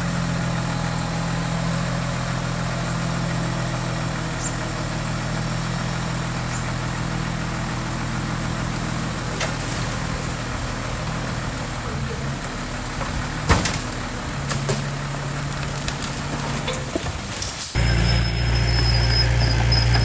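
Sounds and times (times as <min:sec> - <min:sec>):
diesel engine idling: 0:00.0 - 0:17.1, 0:17.8 - 0:20.0.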